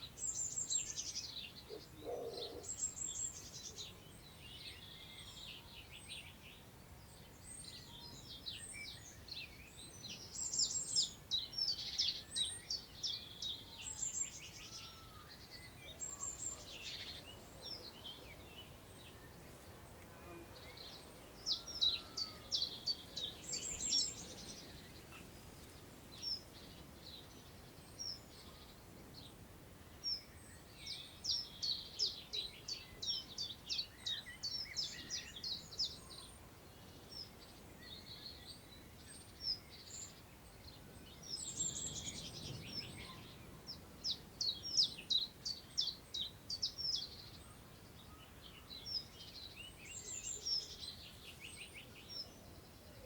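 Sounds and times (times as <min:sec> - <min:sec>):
songbirds singing: 0:00.0 - 0:53.0
wind through long grass: 0:00.0 - 0:53.0.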